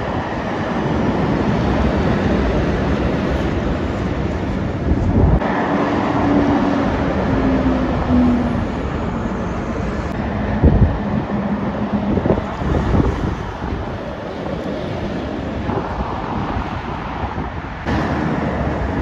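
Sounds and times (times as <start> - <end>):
steady traffic noise: 0.0 - 19.0
heavy truck passing: 5.2 - 19.0.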